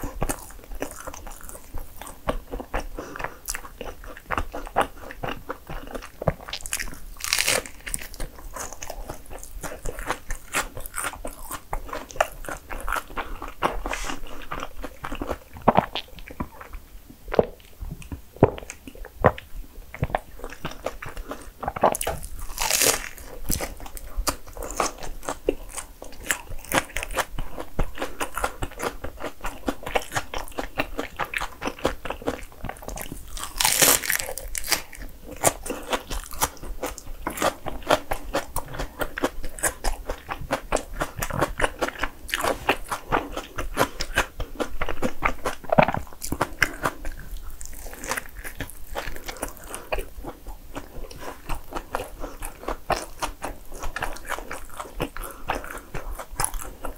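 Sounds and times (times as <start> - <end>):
crisp chewing crunches: 0.0 - 56.9
wet mouth sounds: 0.0 - 56.9.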